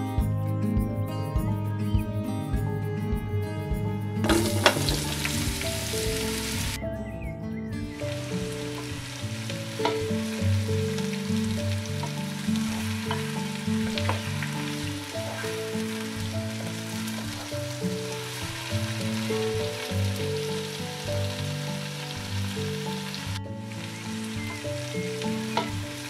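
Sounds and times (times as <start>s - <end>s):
background music low notes: 0.0s - 26.0s
vegetables sizzling in oil: 4.2s - 6.8s, 8.1s - 26.0s.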